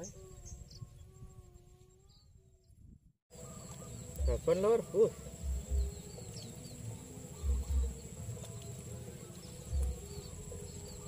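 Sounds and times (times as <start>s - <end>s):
steady high-pitched whine: 3.3s - 11.0s.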